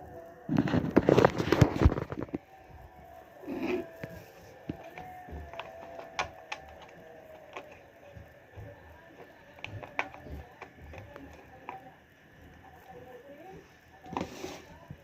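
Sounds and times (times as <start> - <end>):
blender parts clicking and knocking: 4.7 - 8.0, 8.6 - 11.8.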